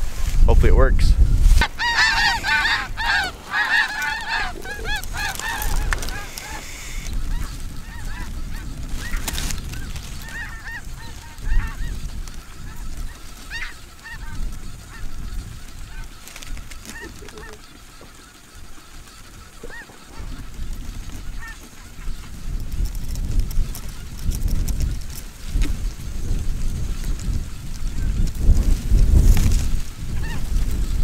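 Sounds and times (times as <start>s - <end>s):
snow geese honking: 1.6s - 22.8s, 29.7s - 31.0s.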